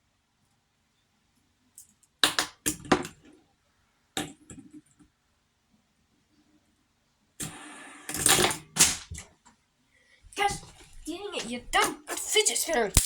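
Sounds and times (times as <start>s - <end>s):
fidget spinner clicking and clattering: 11.3s - 13.0s.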